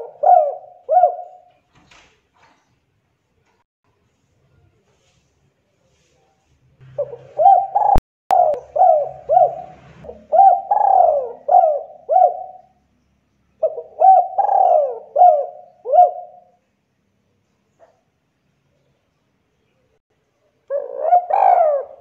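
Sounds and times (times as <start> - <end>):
dove cooing: 0.0 - 1.5, 6.8 - 12.8, 13.6 - 16.6, 20.7 - 22.0.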